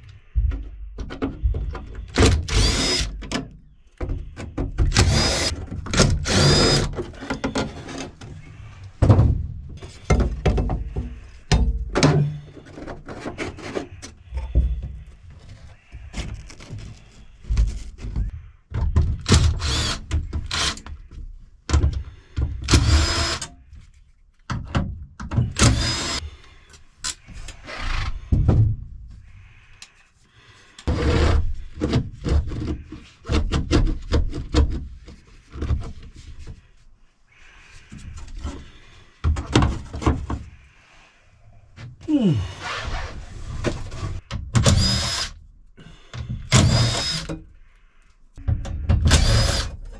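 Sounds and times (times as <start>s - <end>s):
parts scraping: 0.0s - 18.5s
clunks and knocks of parts: 0.0s - 30.0s, 30.8s - 36.7s, 37.9s - 40.6s, 43.6s - 45.3s, 45.9s - 47.6s, 48.3s - 49.9s.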